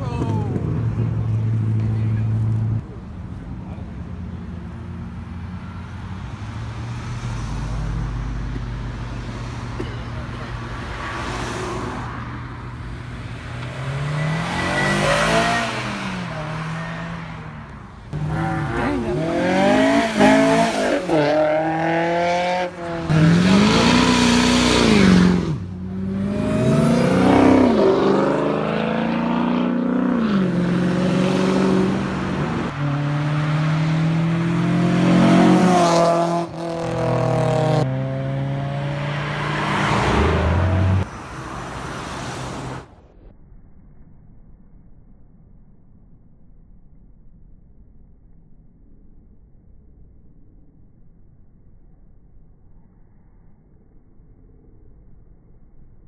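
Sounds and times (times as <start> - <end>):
vehicles accelerating hard: 3.6 - 43.0.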